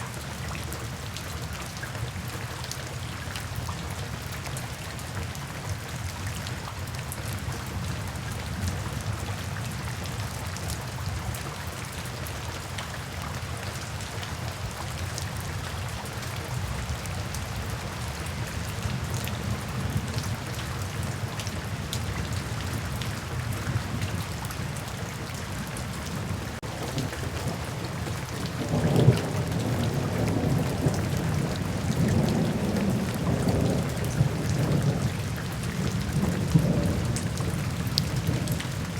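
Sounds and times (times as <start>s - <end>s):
steady rain falling: 0.0s - 38.9s
thunder rumbling: 26.2s - 38.9s.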